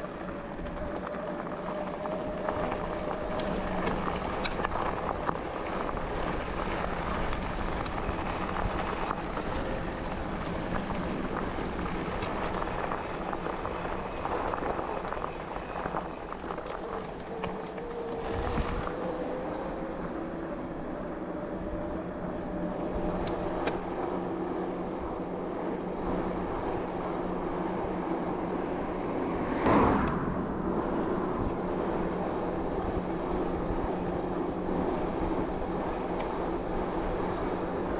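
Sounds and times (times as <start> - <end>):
thin steady motor whine: 0.0 - 29.6
bike tyres on rough path: 0.0 - 37.9
wind on microphone: 0.0 - 37.9.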